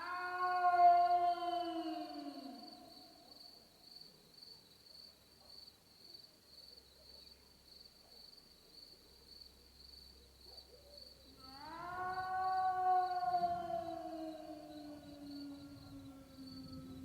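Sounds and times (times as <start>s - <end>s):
animal calling: 11.4s - 17.0s.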